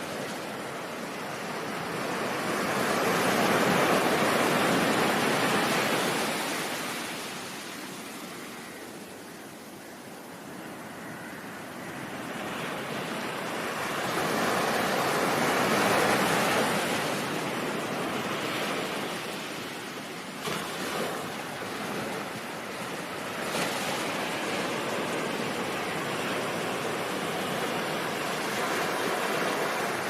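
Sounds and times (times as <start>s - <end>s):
ocean waves washing: 0.0s - 9.1s, 10.2s - 30.0s.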